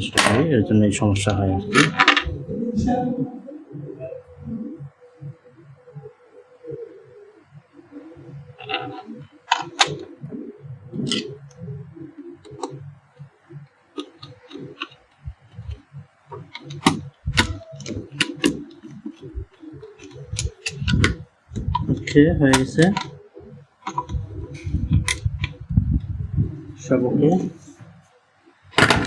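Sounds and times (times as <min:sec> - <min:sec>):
clicks and taps of small parts: 0:09.5 - 0:10.0, 0:12.5 - 0:12.7, 0:14.0 - 0:23.1, 0:23.8 - 0:25.6, 0:28.8 - 0:29.0.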